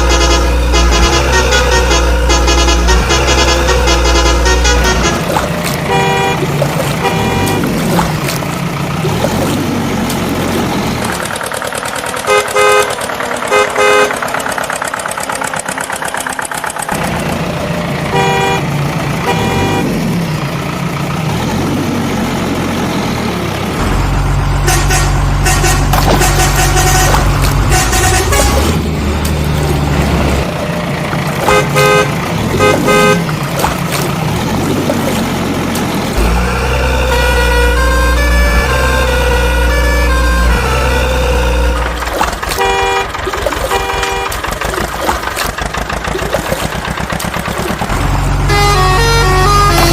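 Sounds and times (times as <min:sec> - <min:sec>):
short horn toots: 0:00.0 - 0:08.4, 0:24.6 - 0:28.8, 0:36.2 - 0:44.6
cartoon engine running: 0:00.0 - 0:18.6, 0:24.6 - 0:29.0, 0:29.6 - 0:49.9.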